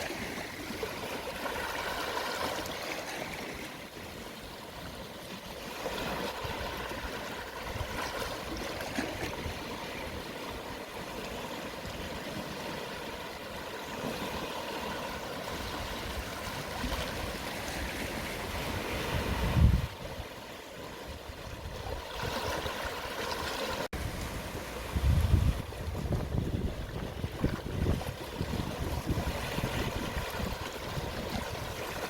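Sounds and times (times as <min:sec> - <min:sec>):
sea waves washing ashore: 0:00.0 - 0:32.0.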